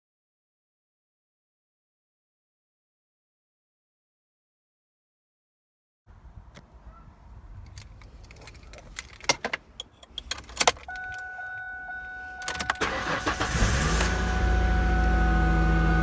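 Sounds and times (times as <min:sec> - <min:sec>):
keys jangling in ignition: 0:07.6 - 0:11.3, 0:12.4 - 0:13.4
car engine starting and idling: 0:10.4 - 0:16.0.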